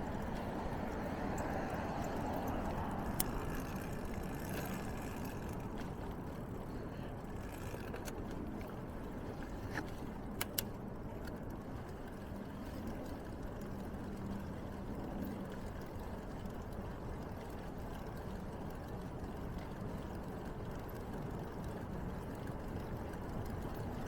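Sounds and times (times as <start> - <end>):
bicycle tyres rumbling: 0.0 - 24.0
sharp clicks: 10.4 - 10.8.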